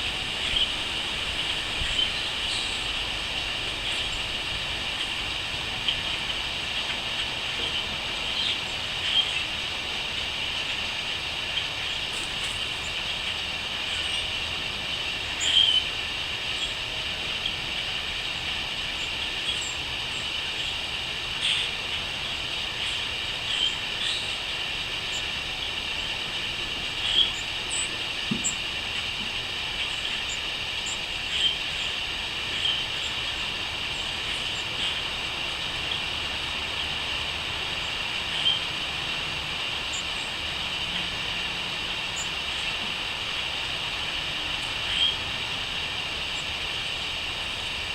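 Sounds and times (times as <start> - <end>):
crickets chirping: 0.0 - 6.5.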